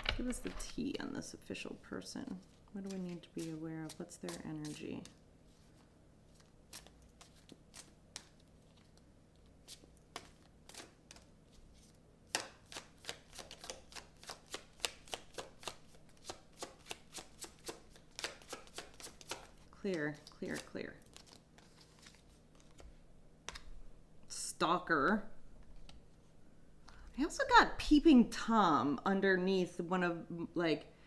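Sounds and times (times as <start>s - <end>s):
cards being shuffled by hand: 2.2s - 23.7s.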